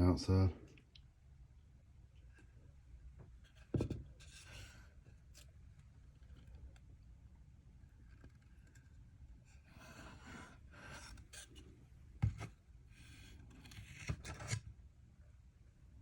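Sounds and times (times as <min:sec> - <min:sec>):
wood scraping against wood: 0:03.6 - 0:05.5, 0:09.5 - 0:14.6
dull wooden knocks: 0:03.7 - 0:04.1.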